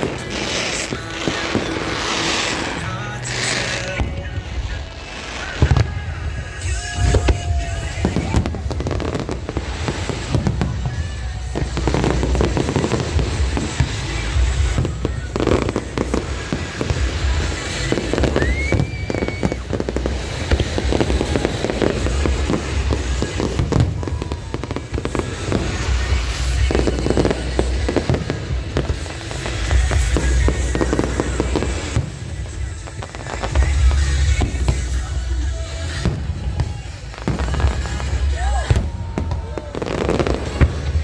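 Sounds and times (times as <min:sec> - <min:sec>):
fireworks booming and crackling: 0:00.0 - 0:41.0
music: 0:00.0 - 0:41.0
rising firework whistle: 0:00.0 - 0:41.0.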